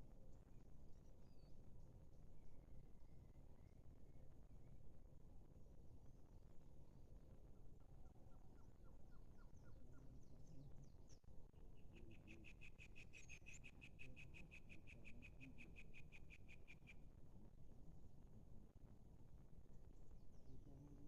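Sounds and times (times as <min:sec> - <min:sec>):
bird calls and trill: 0:07.6 - 0:17.2.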